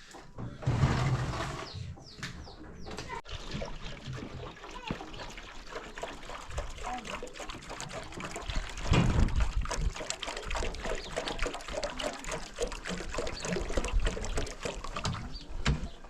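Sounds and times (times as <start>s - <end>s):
water pouring and splashing: 3.0s - 15.8s.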